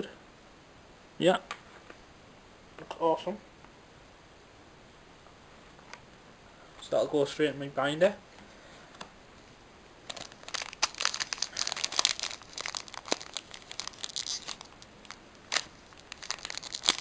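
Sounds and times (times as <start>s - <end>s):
foil wrapper crinkling and tearing: 10.0s - 17.0s.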